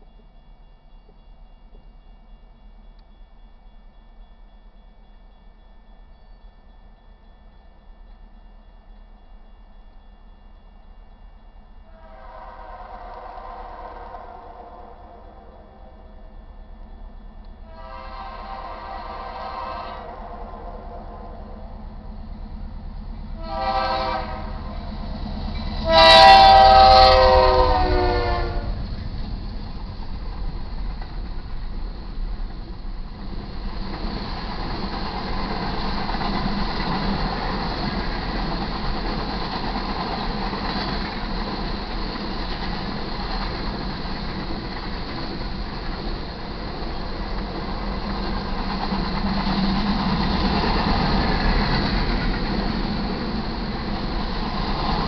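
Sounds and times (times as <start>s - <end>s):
low rumble of locomotives: 0.0s - 55.0s
rail cars clattering on rails: 0.0s - 55.0s
locomotive air horn blasts: 11.9s - 15.2s, 17.6s - 21.6s, 23.4s - 24.8s, 25.8s - 28.8s.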